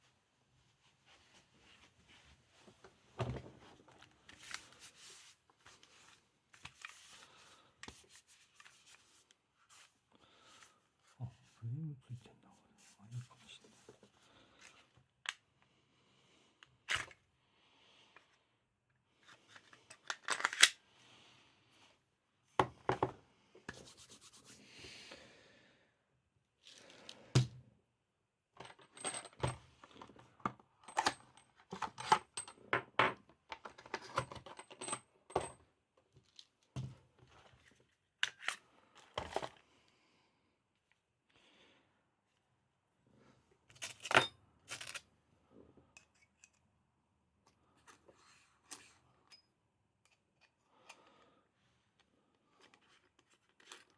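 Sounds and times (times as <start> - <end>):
pistol parts clicking: 20.0 - 20.8.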